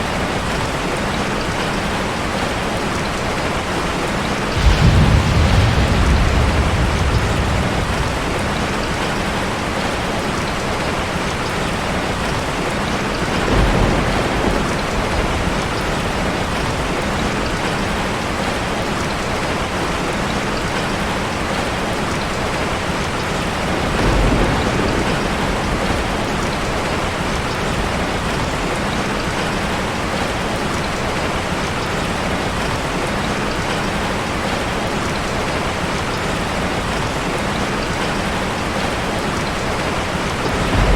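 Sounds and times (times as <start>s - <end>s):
heavy rain hitting a car: 0.0s - 40.9s
thunder rumbling: 4.2s - 20.4s, 23.0s - 30.8s, 37.9s - 40.9s.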